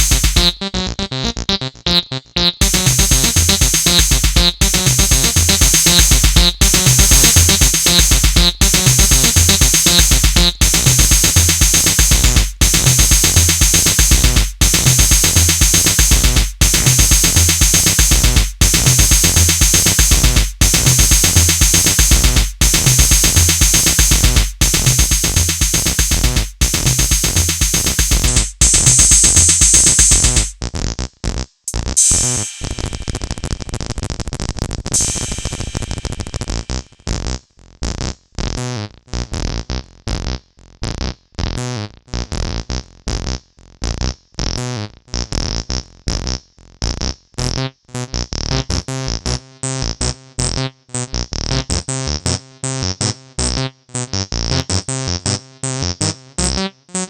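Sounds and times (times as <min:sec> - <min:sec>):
synth lines: 0:00.0 - 0:00.7, 0:02.6 - 0:30.5
drum machine beat: 0:00.0 - 0:00.8, 0:02.4 - 0:30.6, 0:31.7 - 0:33.5, 0:35.0 - 0:36.6.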